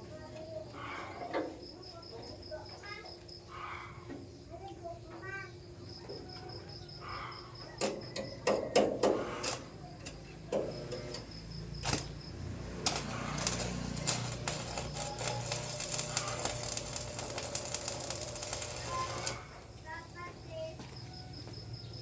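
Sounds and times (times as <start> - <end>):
tools knocking on metal: 7.8 - 9.2
rapid clicking: 12.8 - 19.4.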